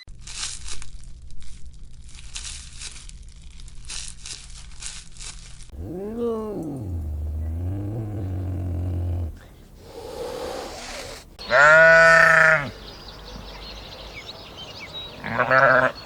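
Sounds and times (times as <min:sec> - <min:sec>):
animal groaning: 0:05.7 - 0:11.8
animal bleat-like call: 0:10.2 - 0:12.7, 0:15.2 - 0:16.0.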